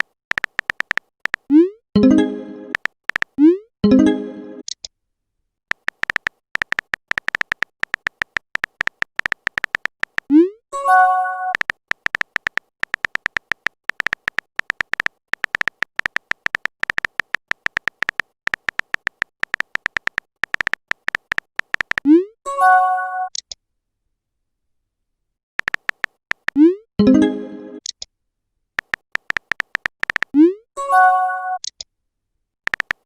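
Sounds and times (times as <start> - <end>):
phone keyboard taps: 0.0 - 1.5, 2.7 - 3.4, 5.7 - 10.3, 11.6 - 22.1, 25.6 - 26.6, 28.8 - 30.3, 32.7 - 33.0.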